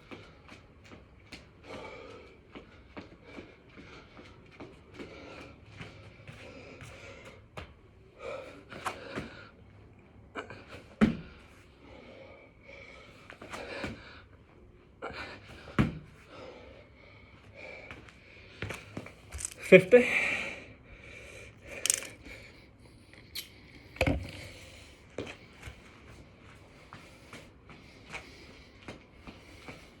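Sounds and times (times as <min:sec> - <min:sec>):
man breathing hard: 0:01.5 - 0:09.6, 0:10.2 - 0:25.6.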